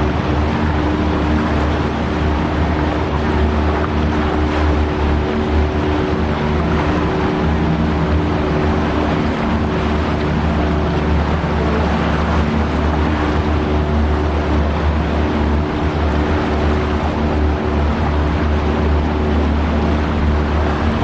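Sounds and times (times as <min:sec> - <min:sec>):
boat motor humming: 0:00.0 - 0:21.0
water noise: 0:00.0 - 0:21.0.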